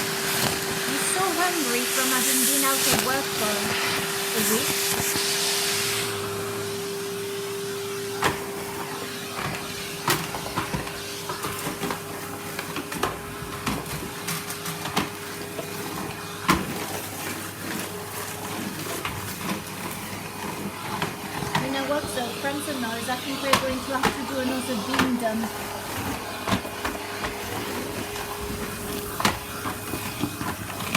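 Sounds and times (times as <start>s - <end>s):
vacuum cleaner motor whine: 0.0s - 30.9s
wood shavings rattling through hose: 0.3s - 3.7s, 4.3s - 5.3s, 11.3s - 30.9s.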